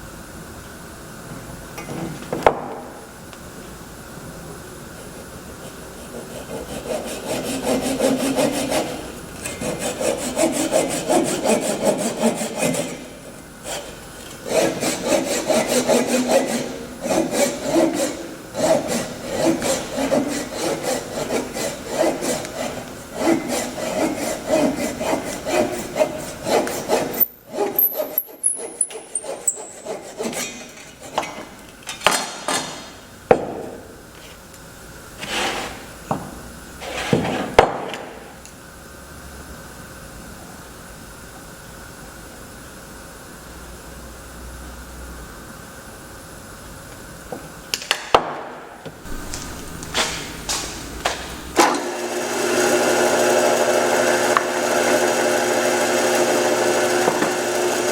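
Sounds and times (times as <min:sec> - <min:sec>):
hand saw cutting wood: 0:05.6 - 0:31.5, 0:35.2 - 0:35.9, 0:49.0 - 0:57.9.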